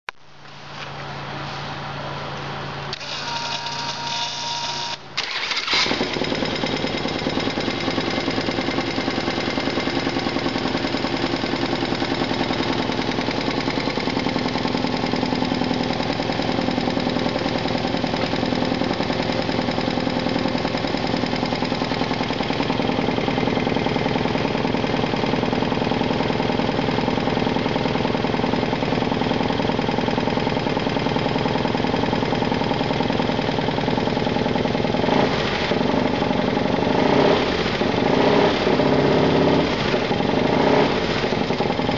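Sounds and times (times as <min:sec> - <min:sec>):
starter motor cranking: 0:02.9 - 0:09.0
motorcycle engine running: 0:05.3 - 0:41.9.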